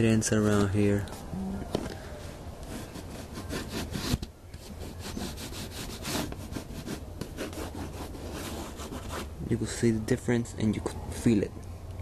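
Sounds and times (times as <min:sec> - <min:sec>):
rubbing on textured wall: 0:02.6 - 0:09.4.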